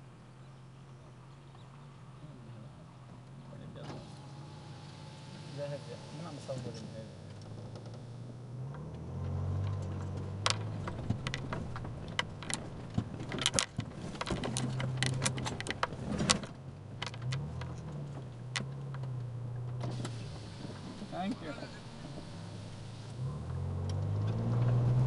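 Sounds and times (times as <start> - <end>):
car engine from inside cabin: 0.0 - 25.0
sharp clicks and knocks: 8.7 - 21.0.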